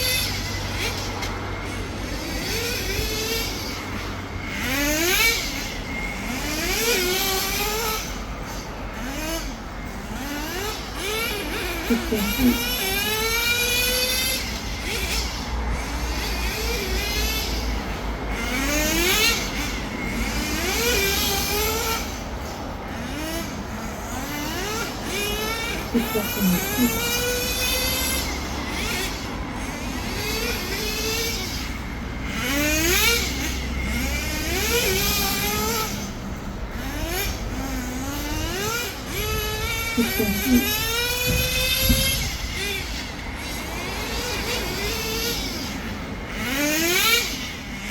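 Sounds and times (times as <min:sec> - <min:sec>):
nitro rc car engine revving: 0:00.0 - 0:47.9.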